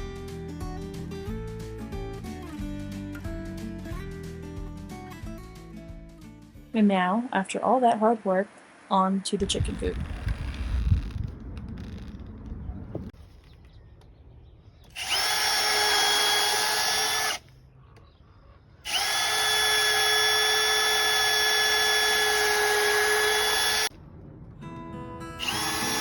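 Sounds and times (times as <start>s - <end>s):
power drill whining: 15.0s - 17.5s, 18.9s - 23.9s, 25.4s - 26.0s.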